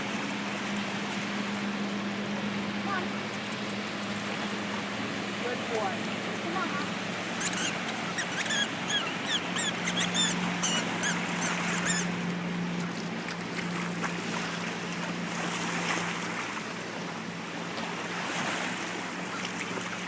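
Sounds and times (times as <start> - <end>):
motorboat engine running: 0.0 - 20.0
water and wind noise: 0.0 - 20.0
bird chirping rapidly: 7.3 - 12.1.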